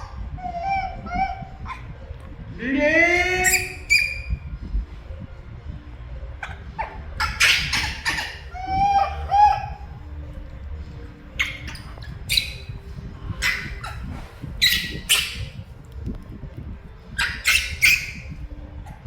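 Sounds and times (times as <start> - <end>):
monkey shrill calls: 0.0 - 1.9, 3.2 - 4.5, 6.4 - 10.1, 11.4 - 15.7, 17.1 - 18.4.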